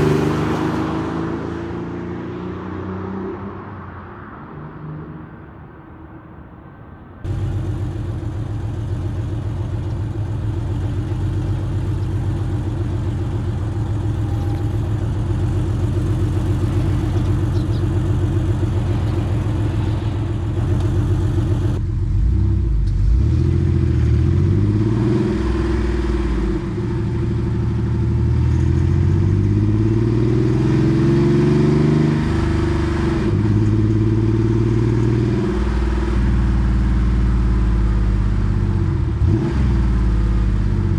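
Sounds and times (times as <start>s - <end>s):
car exhaust accelerating: 7.3s - 26.5s.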